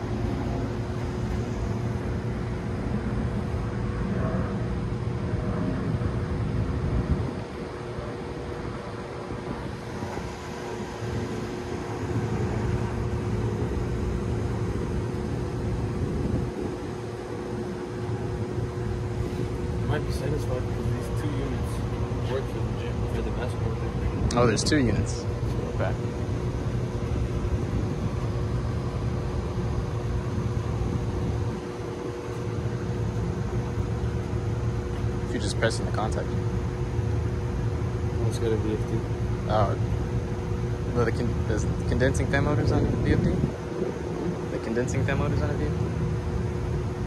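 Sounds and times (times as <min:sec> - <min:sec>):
low rumble: 0:00.0 - 0:17.6
hvac equipment humming: 0:00.0 - 0:47.0
steady machine tones: 0:00.0 - 0:47.0.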